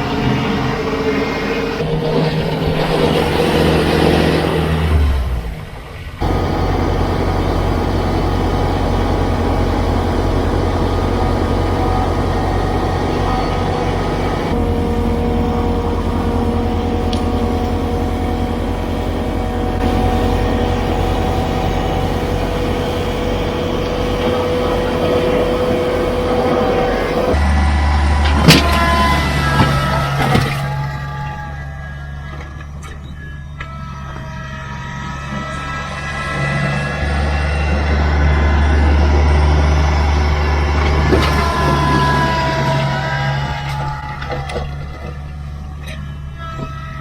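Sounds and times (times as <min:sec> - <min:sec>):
steady whine: 0:00.0 - 0:47.0
tractor diesel engine running: 0:00.0 - 0:47.0.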